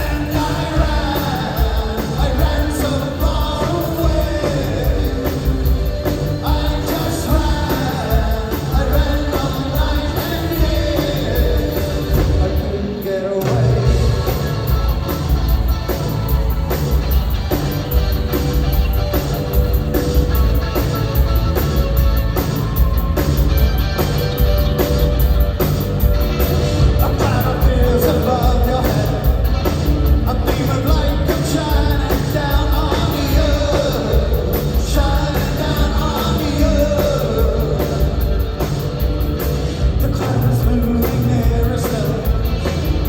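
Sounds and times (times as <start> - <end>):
lead singer singing: 0.0 - 14.8, 26.8 - 38.7, 39.9 - 43.0
live rock band playing: 0.0 - 43.0.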